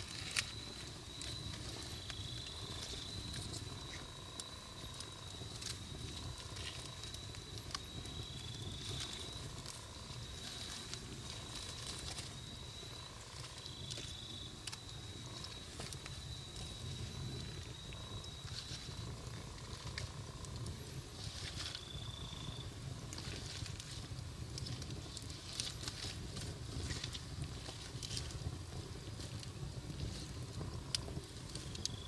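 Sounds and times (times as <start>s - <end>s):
faint high whine: 0.0s - 24.0s
burning wood crackling and popping: 0.0s - 32.0s
campfire flames rumbling: 0.0s - 32.0s.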